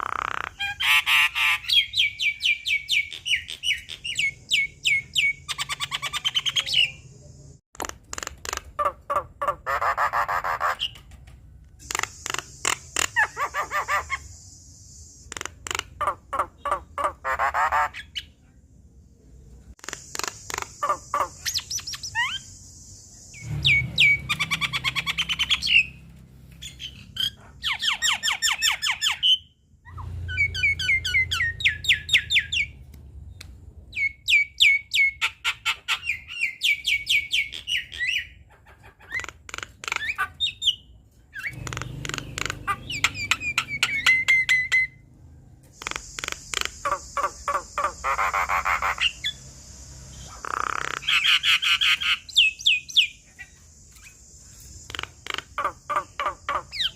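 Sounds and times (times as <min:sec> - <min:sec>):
myna bird singing: 0:00.0 - 0:11.2, 0:11.8 - 0:18.4, 0:19.7 - 0:56.9.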